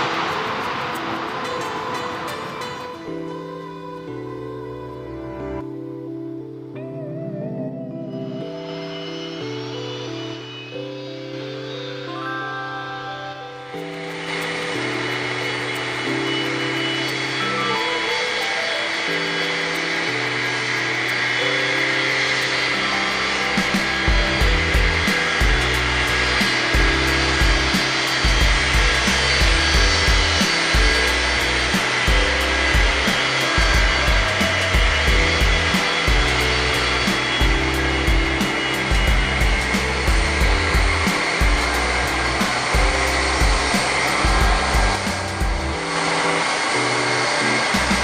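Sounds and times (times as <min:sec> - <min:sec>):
jet engine roar with high whine: 0:00.0 - 0:04.3, 0:08.4 - 0:48.0
music with moving bass line: 0:23.2 - 0:46.0.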